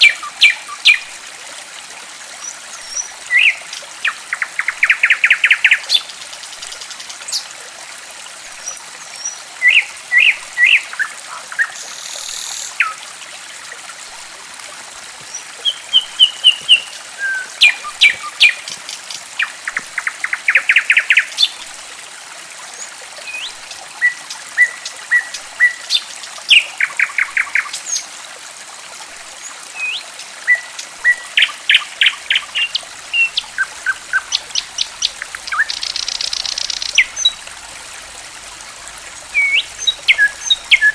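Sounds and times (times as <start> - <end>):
songbirds calling: 0.0 - 1.1, 2.4 - 7.4, 15.2 - 21.6, 29.7 - 40.9
running water trickling: 0.0 - 40.9.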